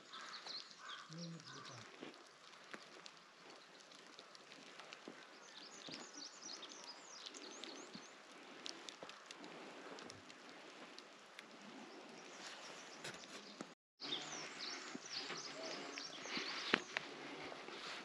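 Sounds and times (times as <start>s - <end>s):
faint birds chirping: 0.0s - 18.0s.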